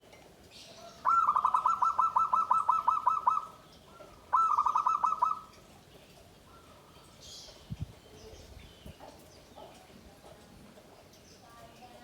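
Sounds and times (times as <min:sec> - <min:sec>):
dove cooing: 0:01.0 - 0:05.5.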